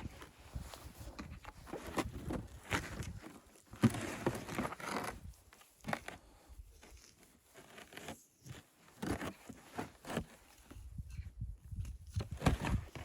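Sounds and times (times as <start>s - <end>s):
handling scraping rustle: 0.0s - 13.0s.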